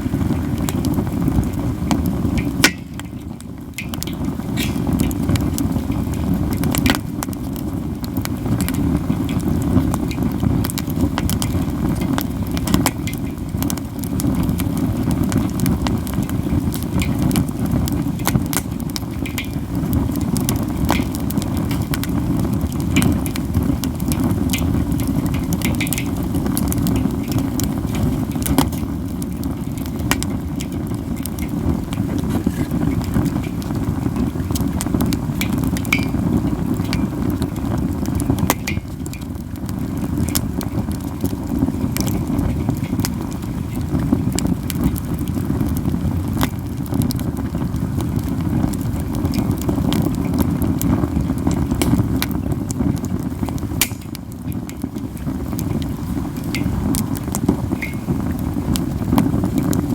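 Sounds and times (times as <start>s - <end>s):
burning wood popping: 0.0s - 59.9s
campfire crackling: 0.0s - 59.9s.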